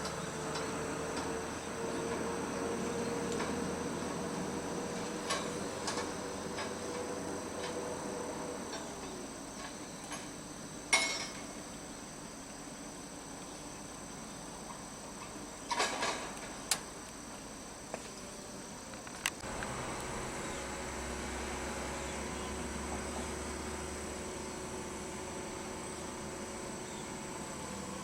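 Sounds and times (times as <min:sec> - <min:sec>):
crane mechanical hum: 0:00.0 - 0:28.0
faint high whine: 0:16.7 - 0:28.0.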